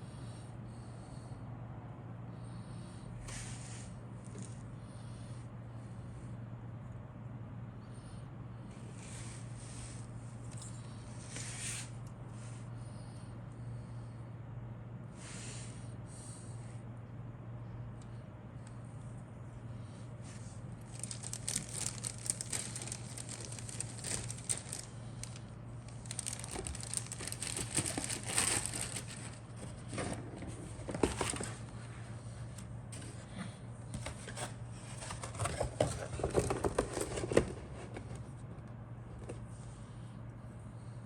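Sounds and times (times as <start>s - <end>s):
steady low hum: 0.0s - 41.0s
plastic packaging crinkling: 20.8s - 31.7s.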